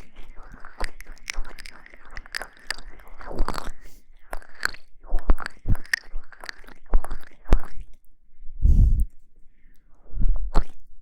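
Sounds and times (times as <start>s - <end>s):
crisp clicks and crackles: 0.0s - 8.1s.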